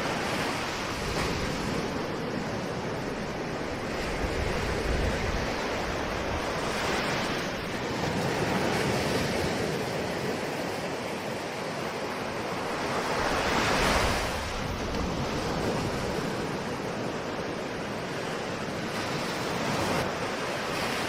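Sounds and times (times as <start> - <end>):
ocean waves washing ashore: 0.0 - 21.0.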